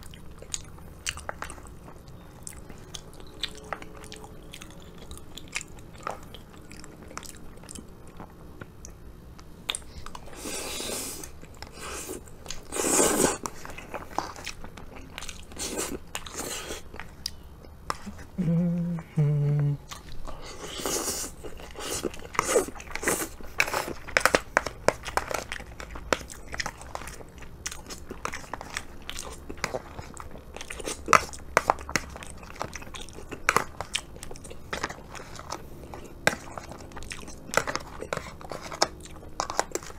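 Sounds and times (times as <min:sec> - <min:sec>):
wet chewing and smacking: 0:00.0 - 0:18.4, 0:19.8 - 0:39.9
slurping: 0:10.2 - 0:13.7
person humming mm: 0:18.0 - 0:19.9.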